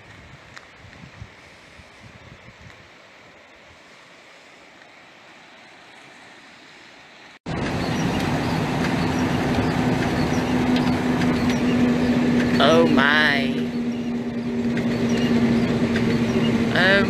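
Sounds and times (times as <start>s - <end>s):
faint outdoor hiss: 0.0s - 7.4s
flooded creek rushing: 0.0s - 17.0s
steady low hum: 7.5s - 17.0s.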